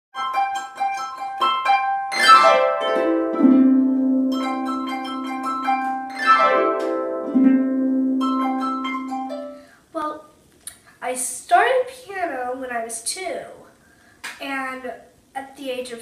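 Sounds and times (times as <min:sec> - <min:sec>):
harp glissandi: 0:00.2 - 0:09.7
harp plucked notes: 0:00.2 - 0:09.7.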